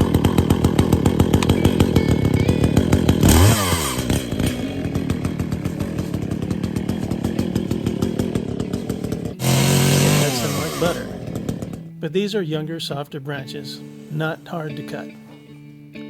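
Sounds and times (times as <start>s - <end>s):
chainsaw idling and revving: 0.0s - 12.7s.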